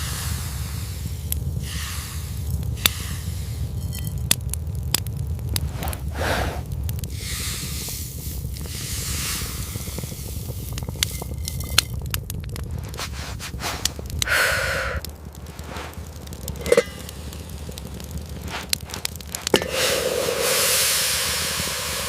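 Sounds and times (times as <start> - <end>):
campfire crackling: 0.0 - 22.0
scraping sounds: 5.5 - 6.7, 8.6 - 20.8.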